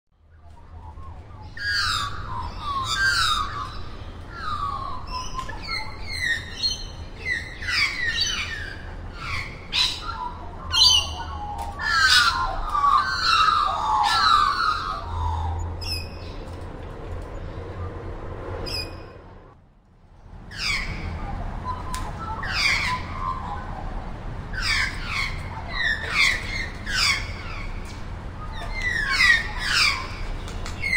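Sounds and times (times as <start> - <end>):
harsh raspy bird calls: 1.4 - 16.4.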